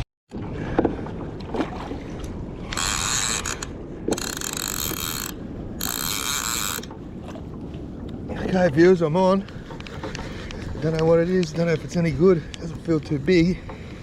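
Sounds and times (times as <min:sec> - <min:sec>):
wind and water rush: 0:00.3 - 0:14.0
fishing reel drag ratchet buzzing: 0:02.7 - 0:06.9.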